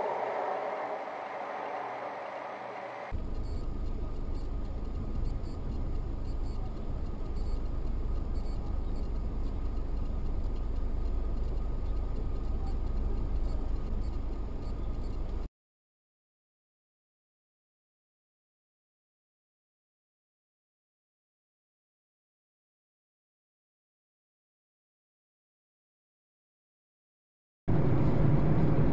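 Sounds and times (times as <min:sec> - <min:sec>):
car engine and road noise: 0:00.0 - 0:15.4, 0:27.7 - 0:28.9.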